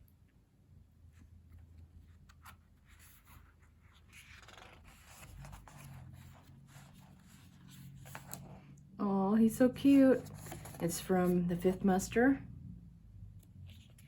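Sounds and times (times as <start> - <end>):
paper pages rustling: 1.9 - 8.7, 10.1 - 11.8.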